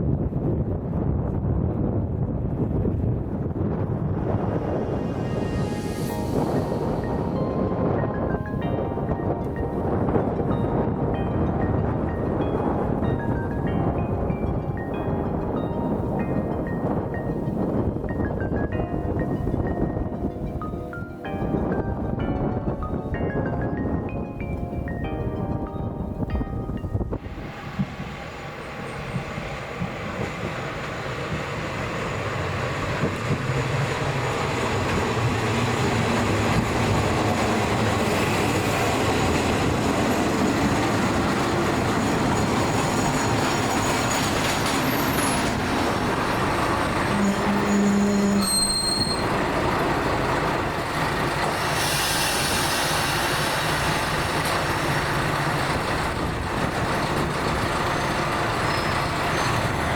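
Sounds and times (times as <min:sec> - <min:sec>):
diesel railcar running: 0:00.0 - 0:24.0, 0:26.6 - 0:59.9
wheel squeals: 0:42.3 - 0:49.4, 0:57.1 - 0:59.9.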